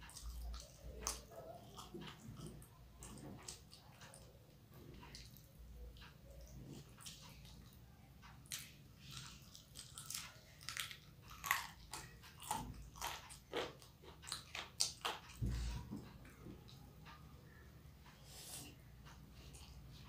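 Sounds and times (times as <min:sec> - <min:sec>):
biting and chewing: 0:00.0 - 0:07.7, 0:08.3 - 0:16.2.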